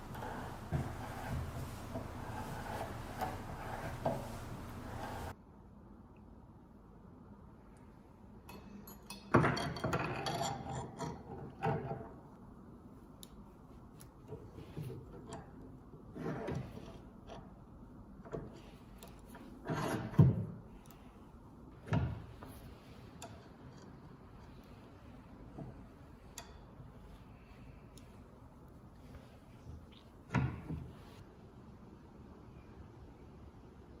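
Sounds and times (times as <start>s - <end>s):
rubbing and scraping: 0.0s - 5.3s, 13.9s - 31.2s.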